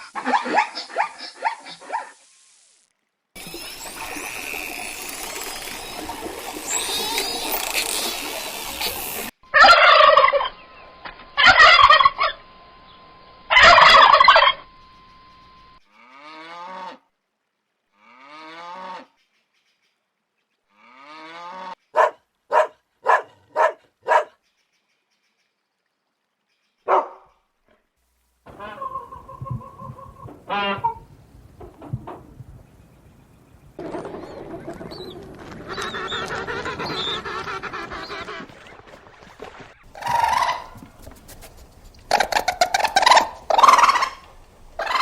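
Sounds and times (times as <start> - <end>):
fowl calling: 9.4 - 12.5, 13.5 - 15.6, 28.5 - 31.2, 33.8 - 45.0.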